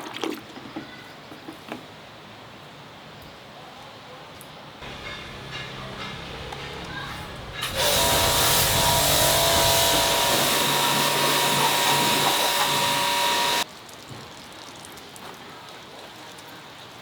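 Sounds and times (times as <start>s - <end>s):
motorized machine hissing whine: 7.4s - 13.6s.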